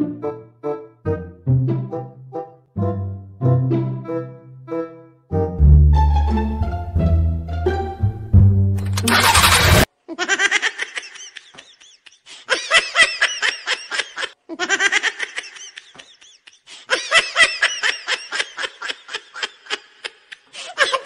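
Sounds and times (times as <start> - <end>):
recorded high-pitched laugh: 8.9 - 21.0.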